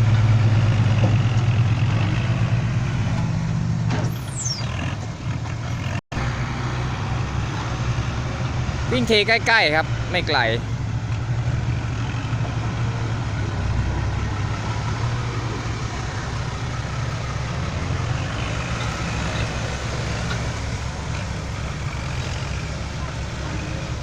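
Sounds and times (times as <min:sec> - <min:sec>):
road noise: 0:00.0 - 0:24.0
truck diesel engine droning: 0:00.0 - 0:24.0.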